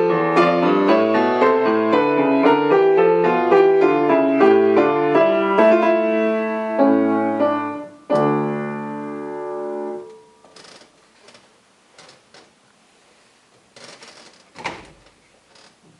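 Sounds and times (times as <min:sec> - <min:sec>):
solo piano: 0:00.0 - 0:10.4.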